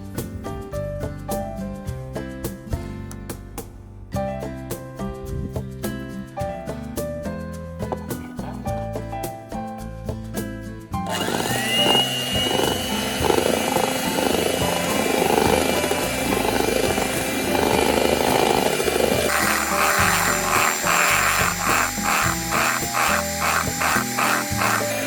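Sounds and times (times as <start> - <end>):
background music: 0.0 - 25.0
electric hand mixer whirring: 11.0 - 25.0.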